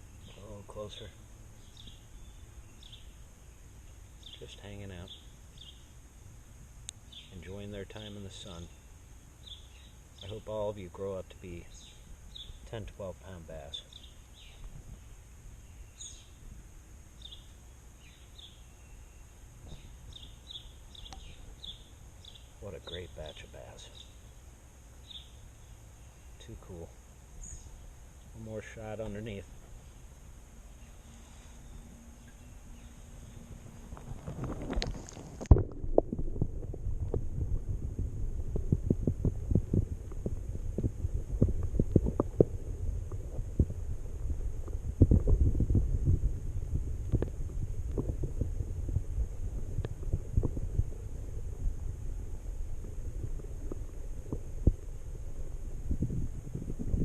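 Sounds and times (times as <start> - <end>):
small birds chirping: 0.0 - 35.2
steady low rumble: 19.3 - 57.0.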